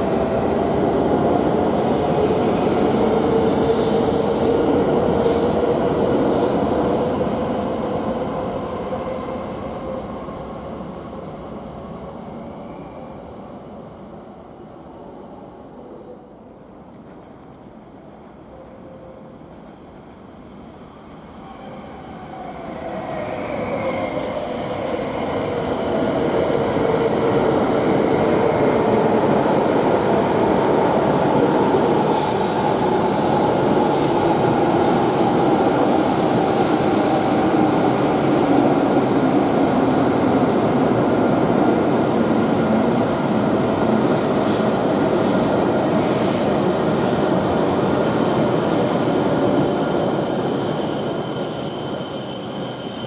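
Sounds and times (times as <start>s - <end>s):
train wheels and air rushing: 0.0s - 12.3s, 22.0s - 53.0s
high brake squeal: 22.9s - 28.4s, 46.1s - 53.0s.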